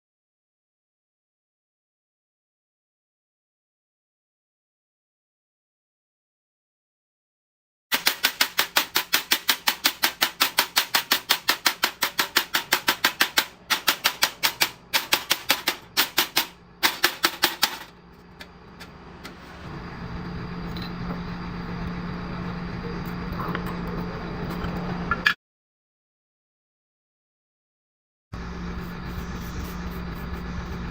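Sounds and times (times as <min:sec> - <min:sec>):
fast mechanical knocking: 0:07.9 - 0:17.9
machine humming: 0:13.3 - 0:25.2, 0:28.4 - 0:30.9.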